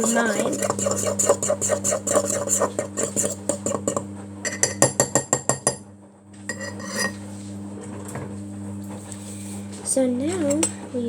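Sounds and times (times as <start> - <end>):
metal fork clinking against a mug: 0.0 - 5.6, 6.5 - 7.2.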